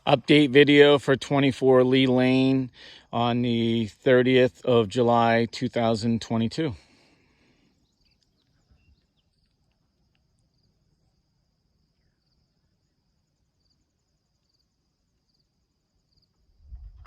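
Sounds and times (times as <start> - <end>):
cricket chirps: 7.0 - 17.0.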